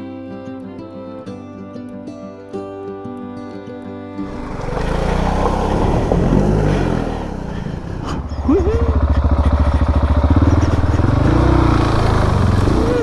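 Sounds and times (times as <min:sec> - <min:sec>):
motorcycle engine running: 0:04.2 - 0:13.0.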